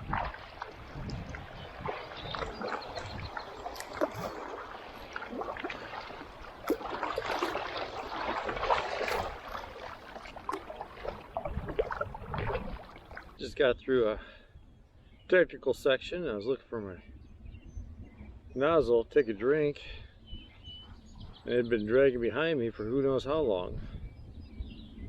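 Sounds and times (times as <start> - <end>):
paddle splashes: 0.0 - 13.4.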